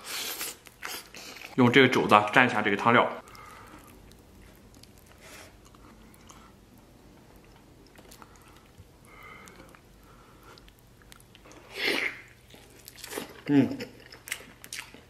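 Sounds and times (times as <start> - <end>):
soft squishes and clicks: 3.2 - 11.6
wet chewing: 3.2 - 15.0.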